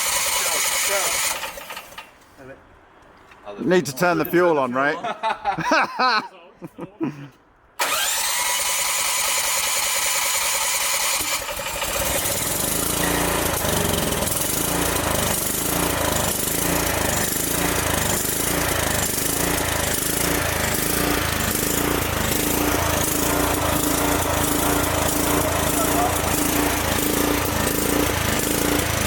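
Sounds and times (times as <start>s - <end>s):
small engine starting and running: 0.0s - 2.1s, 7.8s - 29.0s.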